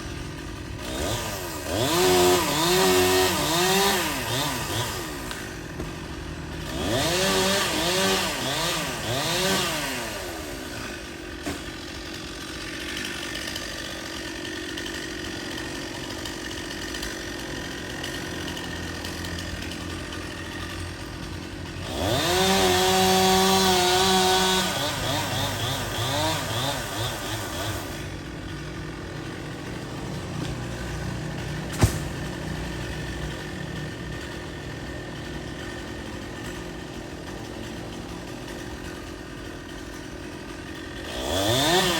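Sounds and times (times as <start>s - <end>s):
chainsaw idling and revving: 0.0s - 41.9s
sharp knock: 31.7s - 32.2s.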